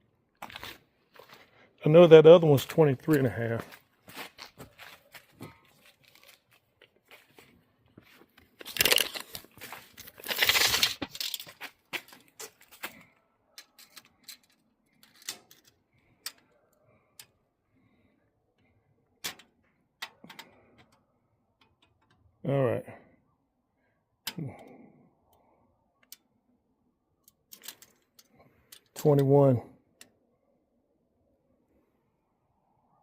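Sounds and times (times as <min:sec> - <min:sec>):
metal parts clattering and scraping: 0:08.6 - 0:13.0, 0:13.6 - 0:16.5, 0:27.4 - 0:29.0.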